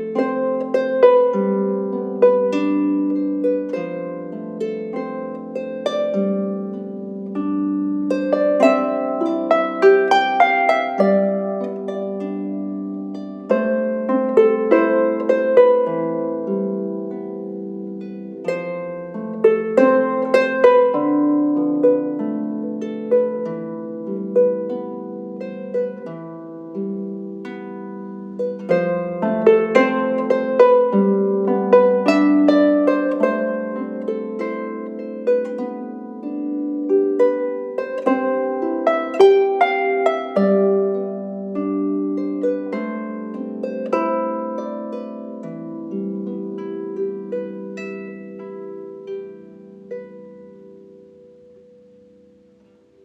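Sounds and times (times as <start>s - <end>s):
harp plucked melody: 0.0s - 53.0s.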